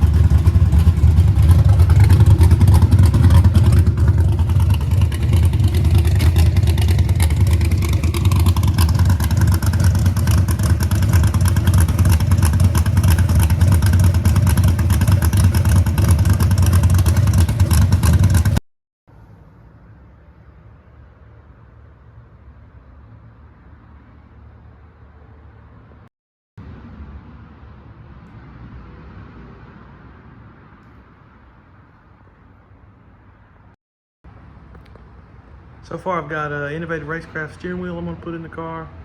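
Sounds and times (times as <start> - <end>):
car engine running: 0.0 - 18.6.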